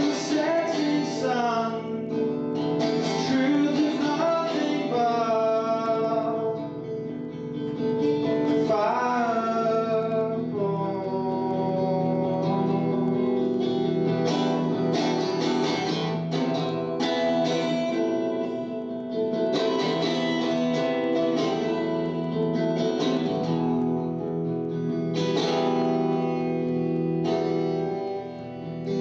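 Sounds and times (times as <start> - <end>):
guitar strumming chords: 0.0 - 29.0.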